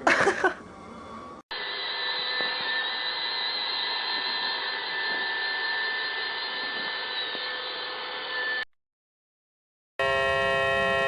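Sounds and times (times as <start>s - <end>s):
small electric motor whirring: 1.5s - 8.7s.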